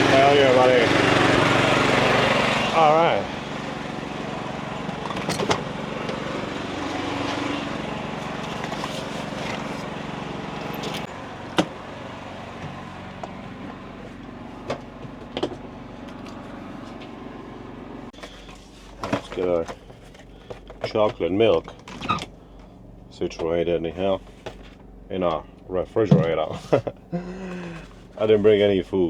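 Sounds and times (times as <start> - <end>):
portable generator running: 0.0 - 18.2, 25.7 - 28.2.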